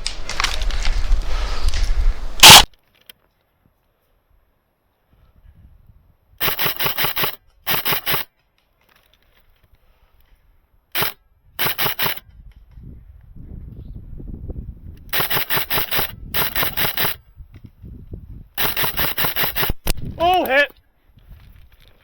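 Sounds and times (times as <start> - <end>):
wind rumbling on microphone: 0.0 - 2.7, 5.2 - 6.4, 12.2 - 20.4, 21.1 - 21.9
airsoft guns firing bursts: 6.4 - 8.3, 11.0 - 12.2, 15.1 - 17.2, 18.6 - 20.0.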